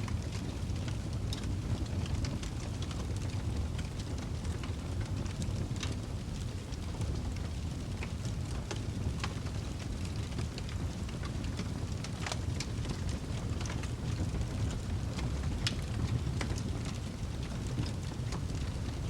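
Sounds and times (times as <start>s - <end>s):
fire crackles and pops: 0.0s - 19.0s
wood fire roaring: 0.0s - 19.0s.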